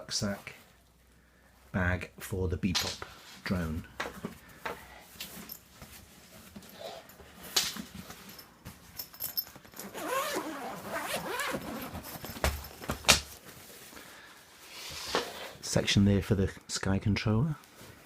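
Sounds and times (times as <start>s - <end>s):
bag rustling: 5.2s - 14.0s
rucksack zipper opening: 9.7s - 12.4s.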